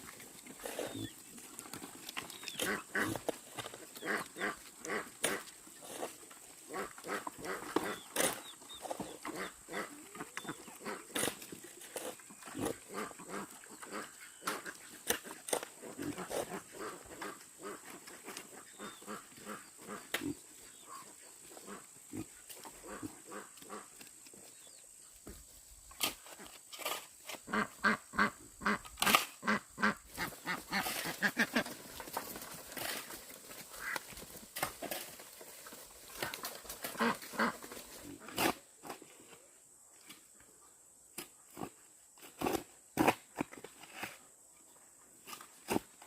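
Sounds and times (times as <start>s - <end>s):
animals calling: 0.1s - 24.7s.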